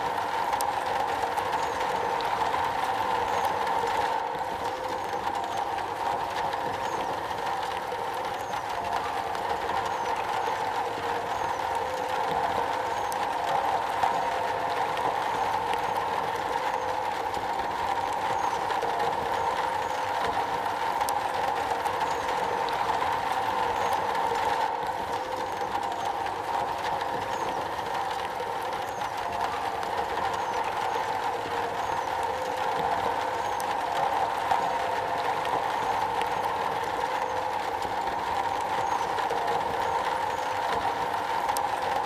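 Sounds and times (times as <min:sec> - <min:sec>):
rain drumming on a metal roof: 0:00.0 - 0:42.0.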